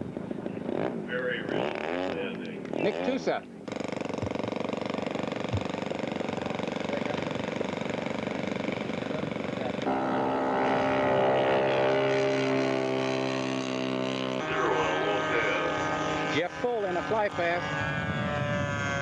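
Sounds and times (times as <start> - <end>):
model airplane engine running: 0.1 - 19.0.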